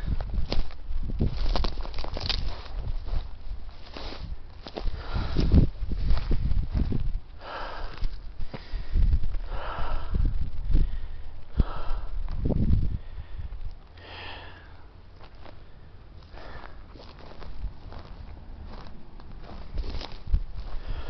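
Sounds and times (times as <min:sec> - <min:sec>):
footsteps: 0:00.1 - 0:07.1, 0:16.2 - 0:21.0
person breathing heavily: 0:04.8 - 0:06.4, 0:07.4 - 0:17.3, 0:20.6 - 0:21.0.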